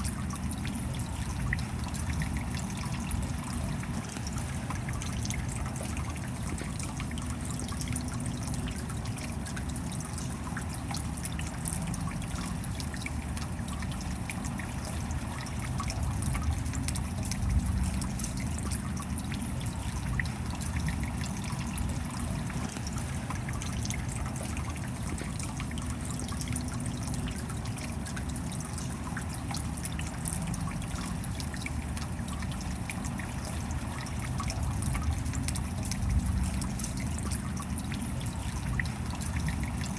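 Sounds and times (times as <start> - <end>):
steady rain: 0.0 - 39.9
water trickling: 0.0 - 39.9.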